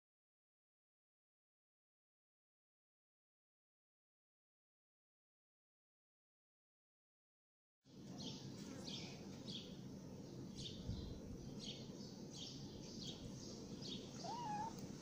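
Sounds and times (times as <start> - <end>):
small bird chirping: 8.2 - 15.0
cat meowing: 14.1 - 14.9.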